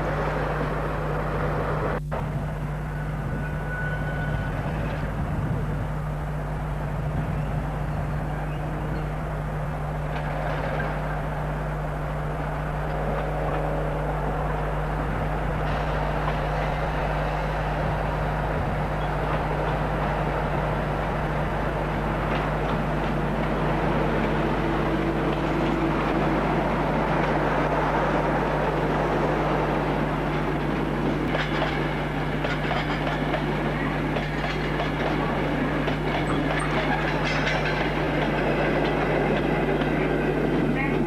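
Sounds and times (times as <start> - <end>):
train running with low hum: 0.0 - 41.0.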